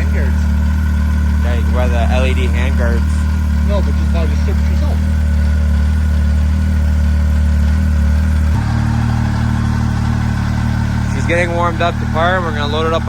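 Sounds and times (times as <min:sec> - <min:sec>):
snowmobile engine idling: 0:00.0 - 0:13.0.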